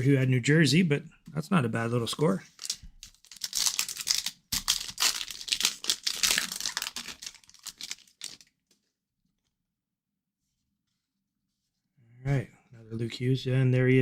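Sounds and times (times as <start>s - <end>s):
foil wrapper tearing and crinkling: 2.6s - 8.5s.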